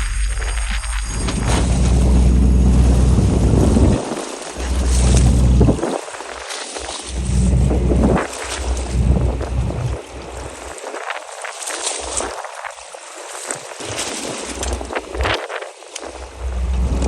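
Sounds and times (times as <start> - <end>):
wind buffeting microphone: 0.0 - 12.8, 13.4 - 17.0
water splashing and sloshing: 0.0 - 17.0.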